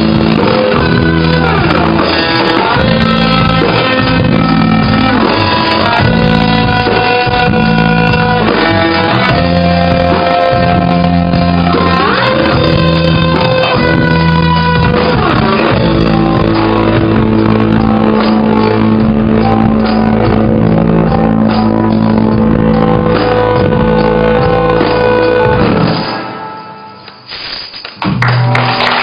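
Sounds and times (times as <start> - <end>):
electric guitar: 0.0 - 29.0
rock band playing live: 0.0 - 29.0.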